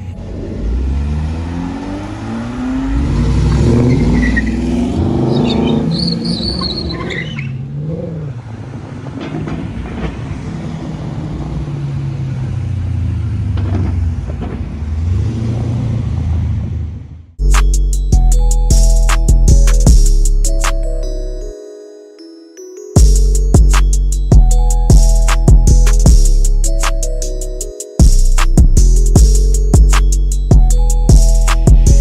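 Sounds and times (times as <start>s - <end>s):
car engine accelerating: 0.0s - 17.4s.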